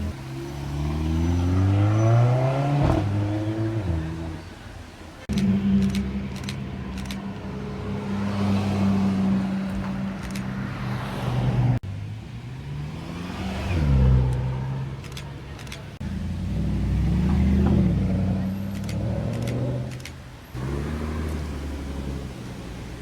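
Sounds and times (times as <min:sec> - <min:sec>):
car engine running and revving: 0:05.2 - 0:23.0.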